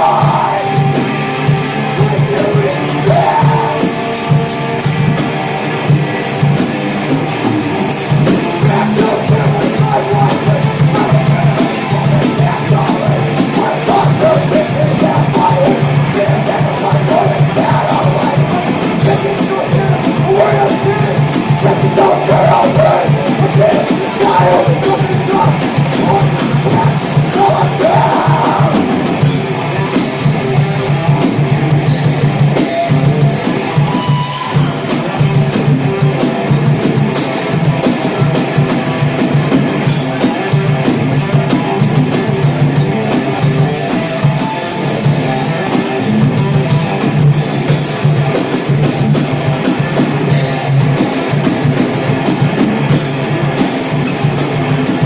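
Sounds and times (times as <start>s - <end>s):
person singing: 0.0s - 4.4s, 8.4s - 29.2s
distorted electric guitars: 0.0s - 55.0s
drum kit with cymbals: 0.0s - 55.0s.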